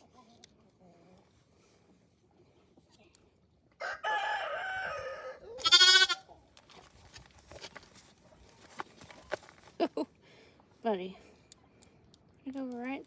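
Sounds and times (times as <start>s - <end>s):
lamb bleating: 5.6s - 6.2s.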